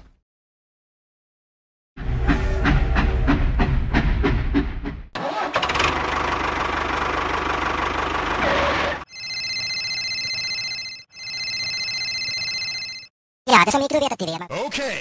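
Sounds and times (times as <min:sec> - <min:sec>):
engine starting and running: 0:02.0 - 0:09.1.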